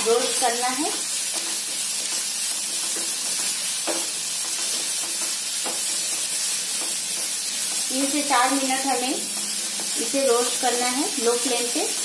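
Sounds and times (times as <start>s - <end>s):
food sizzling in hot oil: 0.0s - 12.0s
spatula scraping a pan: 1.1s - 8.1s.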